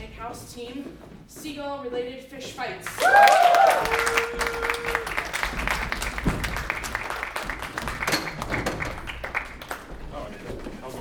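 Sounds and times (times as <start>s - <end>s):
audience cheering and whooping: 2.9s - 6.3s
audience applauding: 2.9s - 10.0s.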